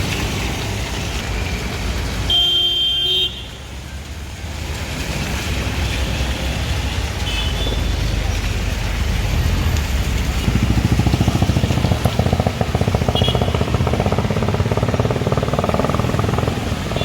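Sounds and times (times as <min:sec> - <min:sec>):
road traffic: 0:00.0 - 0:17.0
vehicle horn: 0:02.3 - 0:03.4, 0:13.1 - 0:13.6.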